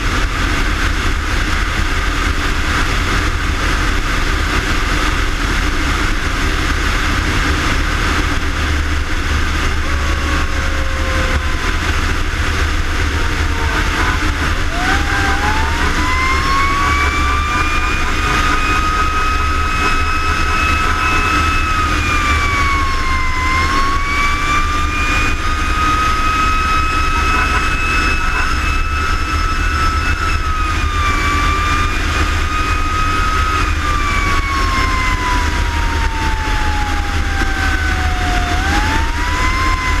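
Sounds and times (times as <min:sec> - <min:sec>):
fire engine siren wailing: 0:00.0 - 0:40.0
truck engine rumble: 0:00.0 - 0:40.0.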